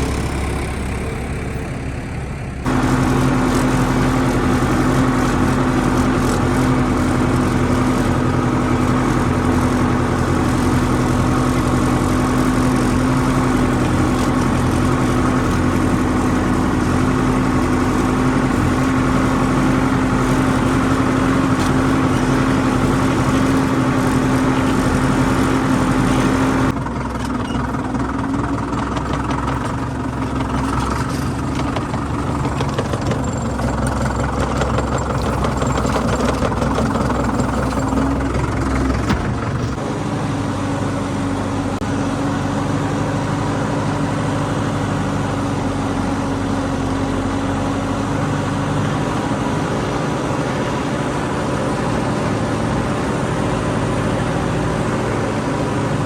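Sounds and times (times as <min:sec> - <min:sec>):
quieter engine running: 0:00.0 - 0:56.0
tractor engine humming: 0:00.0 - 0:56.0.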